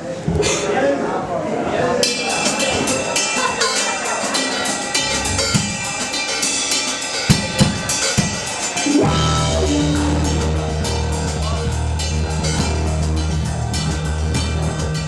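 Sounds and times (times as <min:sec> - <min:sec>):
rock drum kit playing: 0:02.2 - 0:15.0
low sustained bass notes: 0:09.0 - 0:15.0.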